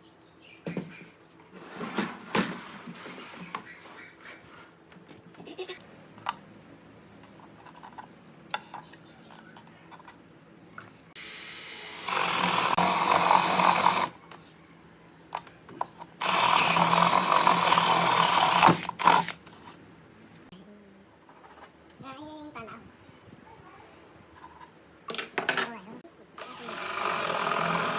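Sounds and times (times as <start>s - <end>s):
power drill running: 11.2s - 14.1s, 16.2s - 19.4s, 26.4s - 27.9s.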